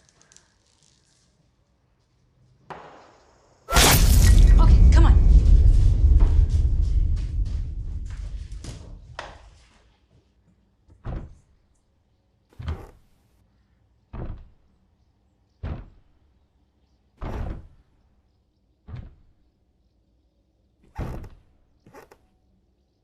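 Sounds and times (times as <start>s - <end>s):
dull thuds: 3.7s - 9.7s, 10.9s - 11.5s, 14.1s - 14.7s, 15.6s - 16.2s, 17.2s - 17.9s, 18.9s - 19.4s.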